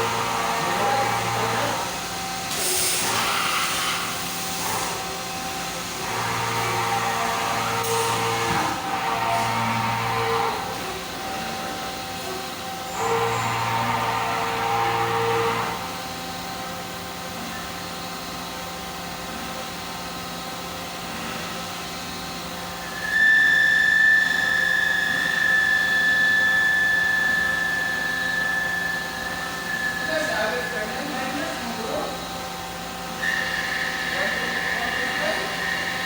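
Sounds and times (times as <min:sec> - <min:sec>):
machine humming: 0:00.0 - 0:36.0
high-pitched whine: 0:21.1 - 0:36.0.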